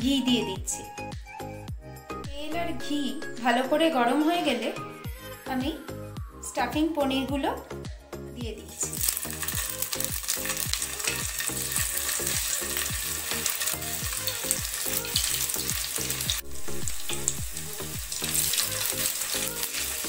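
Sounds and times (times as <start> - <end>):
food frying in hot oil: 8.8 - 20.0.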